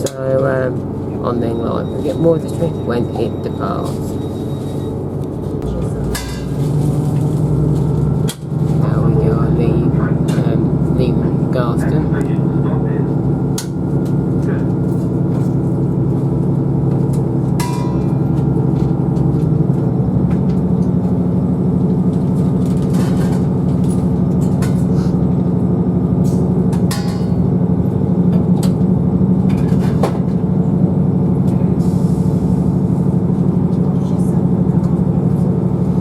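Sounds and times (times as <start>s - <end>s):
train engine running: 0.0s - 36.0s.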